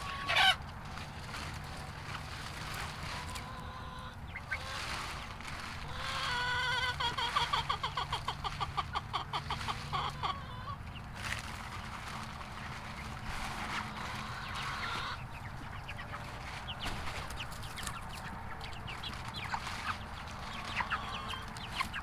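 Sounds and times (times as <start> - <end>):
chickens clucking: 0.0 - 22.0
bird rapid repeated calls: 14.0 - 22.0.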